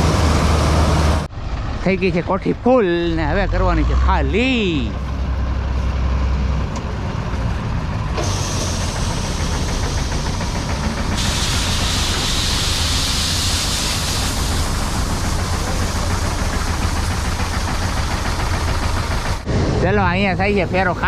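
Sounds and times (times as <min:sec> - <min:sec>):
combine harvester humming: 0:00.0 - 0:21.0
hiss of pouring grain: 0:10.3 - 0:17.9.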